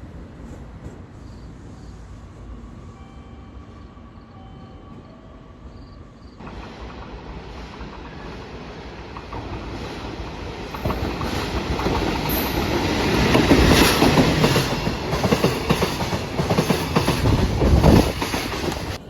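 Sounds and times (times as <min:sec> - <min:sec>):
train rumble: 0:00.0 - 0:19.0
train wheels clattering on rails: 0:06.4 - 0:19.0.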